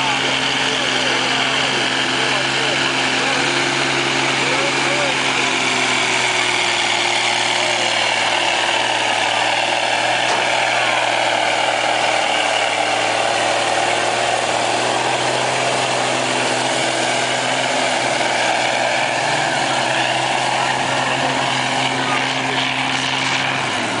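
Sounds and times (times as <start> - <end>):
truck engine running: 0.0 - 24.0.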